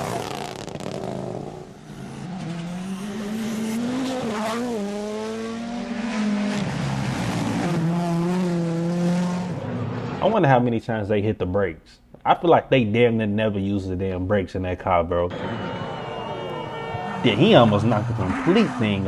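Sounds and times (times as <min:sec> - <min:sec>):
rally car engine revving: 0:00.0 - 0:10.2, 0:16.7 - 0:19.0.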